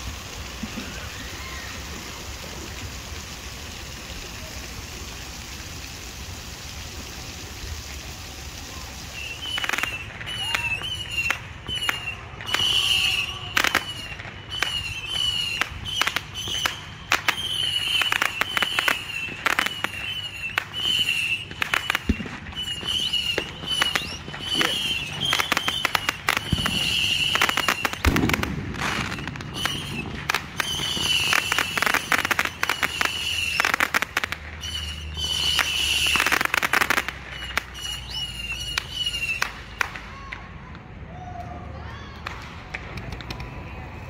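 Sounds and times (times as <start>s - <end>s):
fireworks popping and banging: 0.0s - 1.2s, 9.1s - 40.8s, 42.2s - 44.0s
steady hiss: 0.0s - 37.8s.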